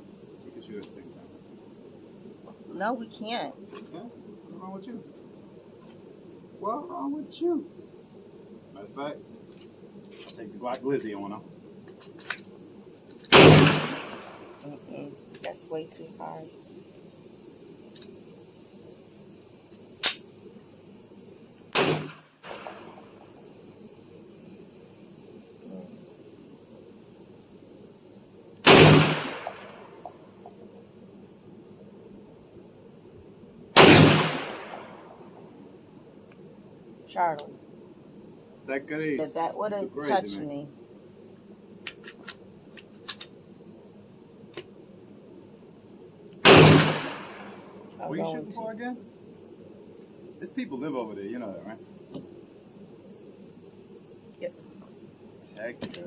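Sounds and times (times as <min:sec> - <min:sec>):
crickets trilling: 0:00.0 - 0:56.0
insects chirping: 0:00.0 - 0:56.0
pistol shots: 0:13.3 - 0:14.4, 0:21.8 - 0:23.0, 0:28.6 - 0:29.8, 0:33.8 - 0:35.0, 0:46.4 - 0:47.6.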